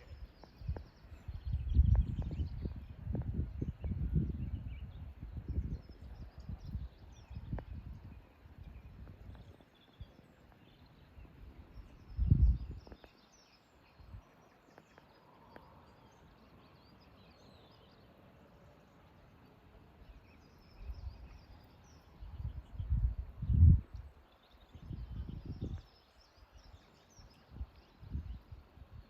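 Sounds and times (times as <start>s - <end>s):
wind buffeting microphone: 0.0s - 13.1s, 20.6s - 29.0s
faint birdsong chirping: 0.0s - 29.0s.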